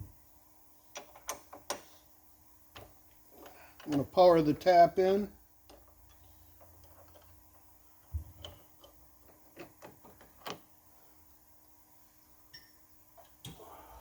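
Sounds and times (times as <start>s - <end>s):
faint low hum: 0.0s - 14.0s
tools clicking and knocking: 0.9s - 2.0s, 2.7s - 4.2s, 5.6s - 10.7s.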